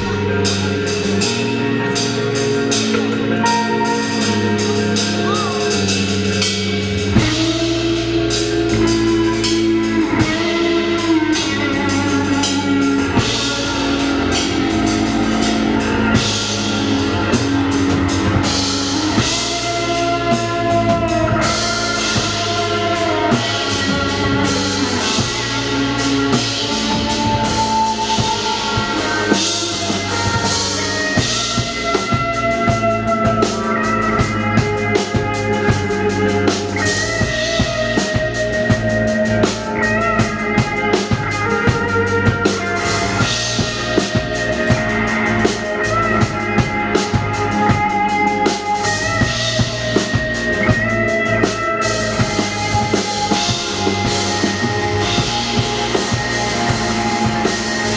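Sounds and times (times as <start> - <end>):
drum kit beat: 0.0 - 57.9
rock band playing live: 0.0 - 57.9.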